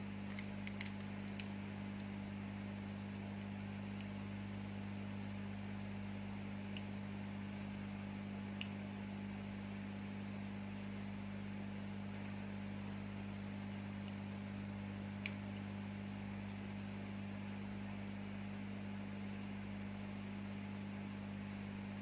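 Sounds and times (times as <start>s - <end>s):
electrical mains hum: 0.0s - 22.0s
small sharp clicks: 0.2s - 2.1s, 8.6s - 8.8s, 15.2s - 15.7s.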